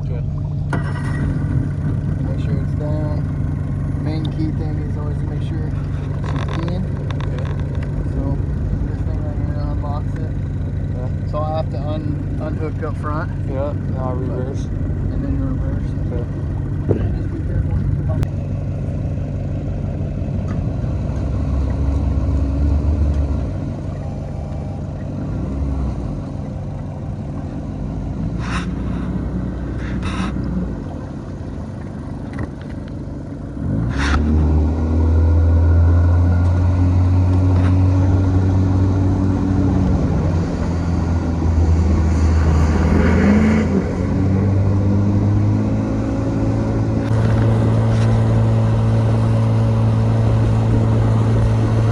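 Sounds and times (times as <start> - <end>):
outboard motor running: 0.0 - 33.6, 44.5 - 51.9.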